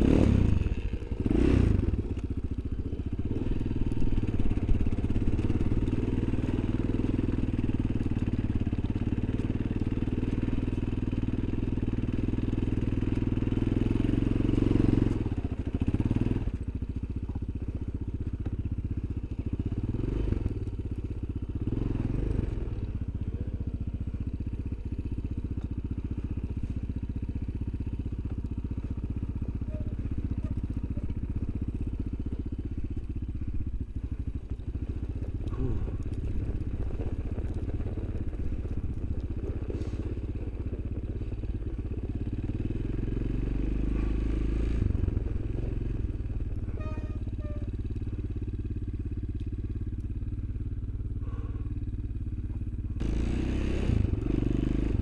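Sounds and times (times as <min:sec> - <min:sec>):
off-road vehicle engine droning: 0:00.0 - 0:55.0.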